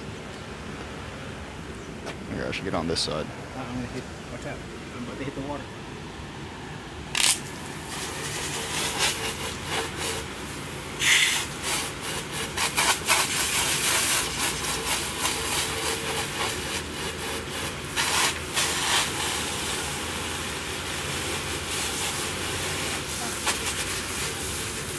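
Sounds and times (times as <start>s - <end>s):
hot object sizzling in water: 11.0s - 24.9s.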